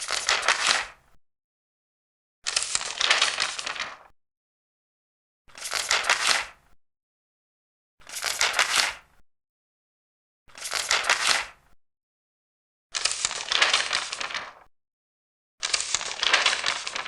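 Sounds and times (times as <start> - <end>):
paper pages turning: 0.0 - 1.0, 2.5 - 4.1, 5.5 - 6.6, 8.0 - 9.0, 10.5 - 11.6, 13.0 - 14.7, 15.6 - 17.0.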